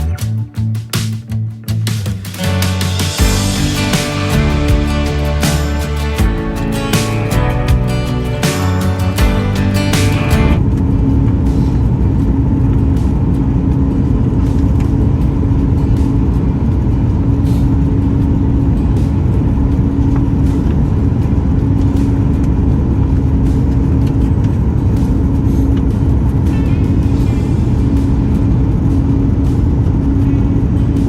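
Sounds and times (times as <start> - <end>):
steady hum: 3.1 - 10.7.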